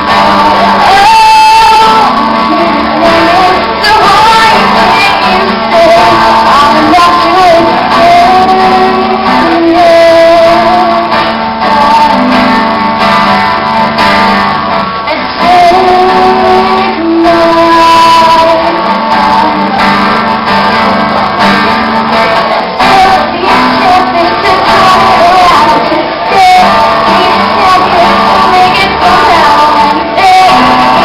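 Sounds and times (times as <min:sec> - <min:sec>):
guitar: 0:00.0 - 0:31.0
woman singing: 0:00.0 - 0:31.0.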